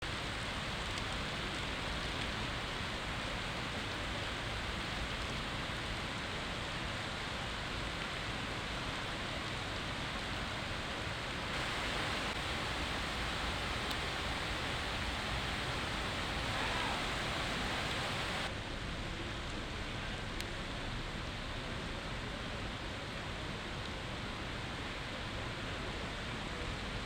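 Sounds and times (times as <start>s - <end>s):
heavy rain falling: 0.0s - 18.5s.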